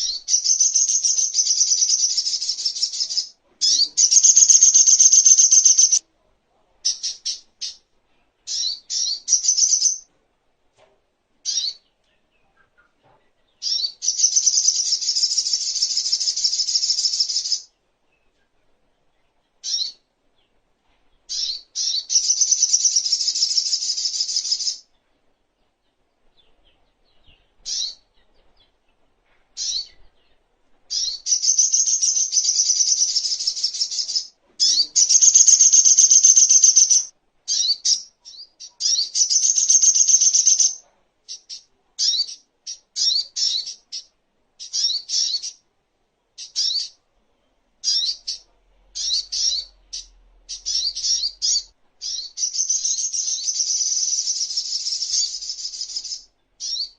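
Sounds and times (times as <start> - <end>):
bird chattering trills: 0.0 - 6.0, 30.9 - 45.6.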